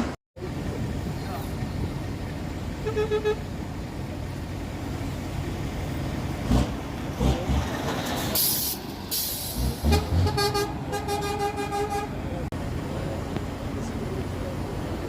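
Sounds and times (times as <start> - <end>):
truck engines running: 0.0 - 15.0
air horn: 2.8 - 3.4, 9.8 - 12.2
compressed air hiss: 8.4 - 9.8.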